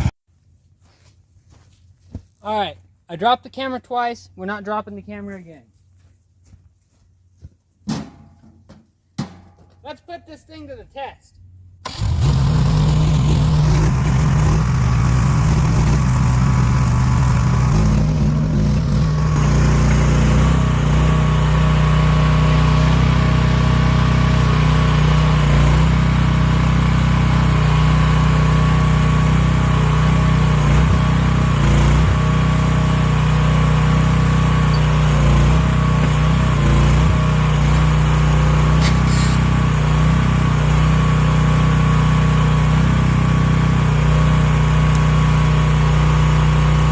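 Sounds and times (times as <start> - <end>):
excavator engine running: 11.8 - 46.9.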